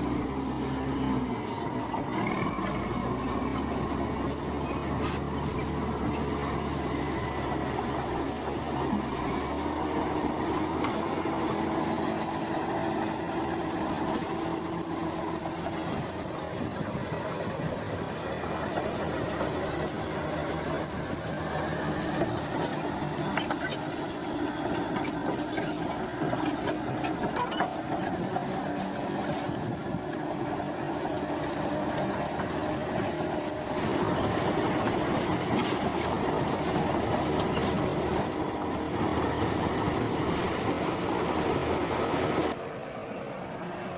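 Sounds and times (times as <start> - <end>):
track links squeaking: 0.0 - 42.6
diesel engine running: 0.0 - 43.9.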